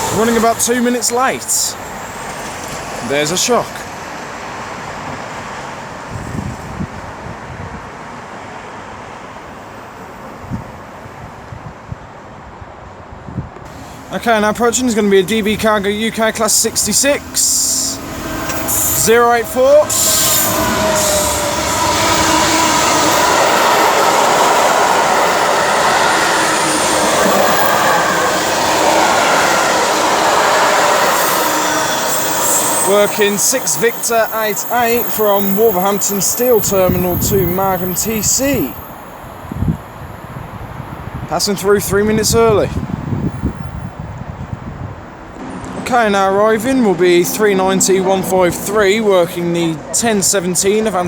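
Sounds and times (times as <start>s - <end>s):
train passing with rushing noise: 0.0s - 51.0s
wind buffeting microphone: 6.0s - 8.0s, 10.4s - 32.2s, 35.1s - 45.6s
faint wheel squeal: 13.7s - 39.3s.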